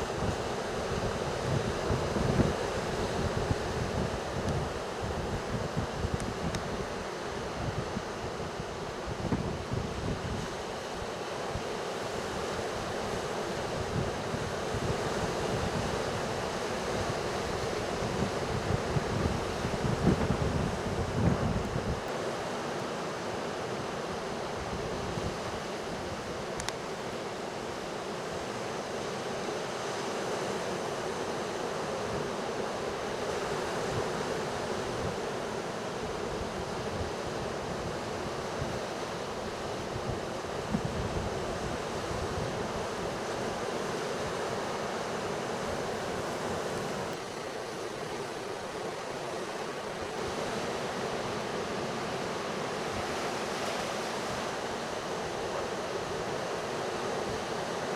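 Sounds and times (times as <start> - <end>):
wind rumbling on microphone: 0.0 - 10.6, 17.0 - 22.1, 39.7 - 43.2.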